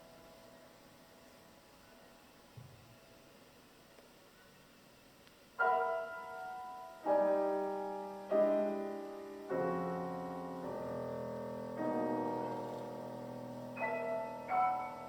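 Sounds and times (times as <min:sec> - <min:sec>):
piano chords ringing: 0:05.6 - 0:15.0.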